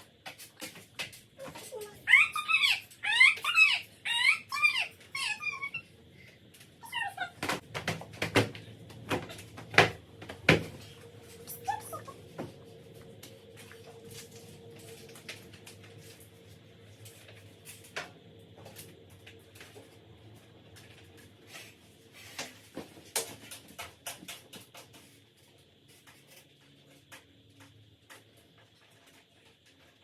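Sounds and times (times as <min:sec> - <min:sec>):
low steady hum: 0:00.0 - 0:23.1.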